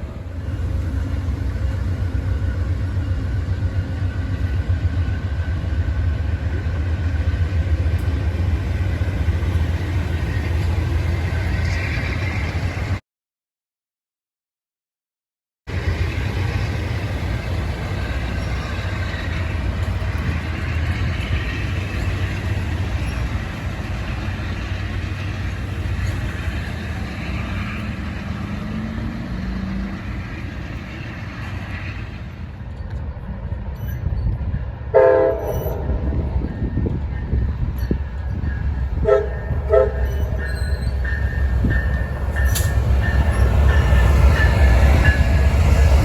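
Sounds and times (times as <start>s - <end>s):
passenger train rumbling by: 0.0s - 13.0s, 15.7s - 46.0s
train horn blast: 34.9s - 36.1s, 39.0s - 40.4s.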